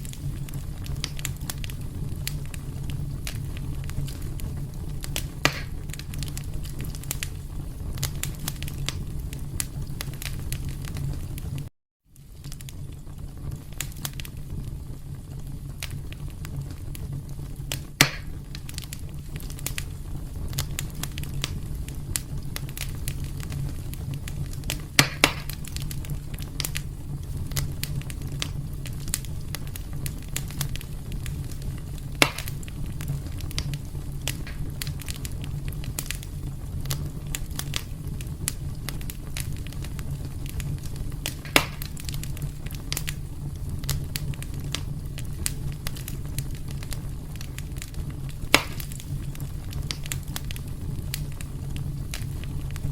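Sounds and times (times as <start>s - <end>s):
low rumble of flames: 0.0s - 52.9s
sharp pops of fire: 0.0s - 52.9s
wood fire crackling: 0.0s - 52.9s.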